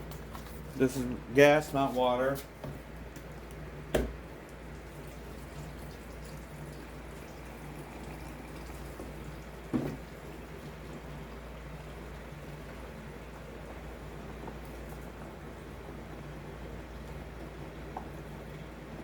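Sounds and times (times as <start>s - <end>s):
fuel pouring into tank: 4.2s - 19.0s.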